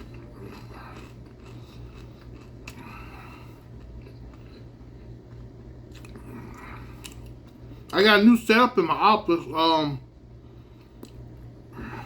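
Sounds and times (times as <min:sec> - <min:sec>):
person chewing crunchy snack: 0:00.0 - 0:07.6
steady low hum: 0:00.0 - 0:12.0.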